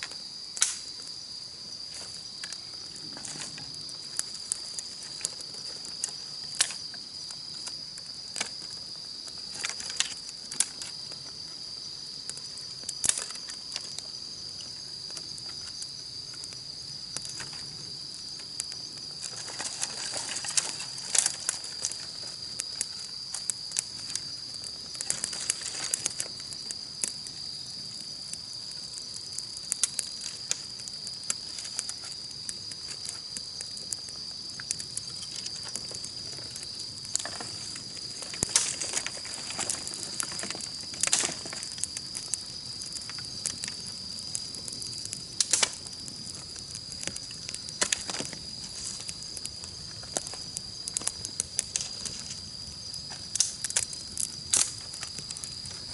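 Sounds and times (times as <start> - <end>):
campfire crackling: 0.0 - 55.9
insects chirring: 0.0 - 55.9
fire popping sharply: 0.5 - 1.0, 34.8 - 52.4.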